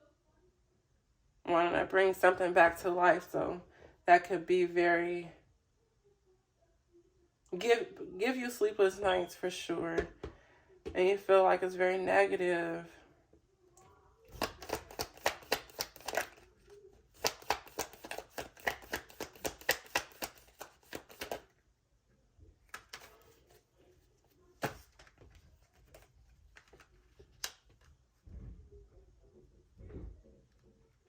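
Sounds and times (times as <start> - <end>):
cards shuffled by hand: 14.3 - 21.5, 22.7 - 23.6, 24.6 - 28.0.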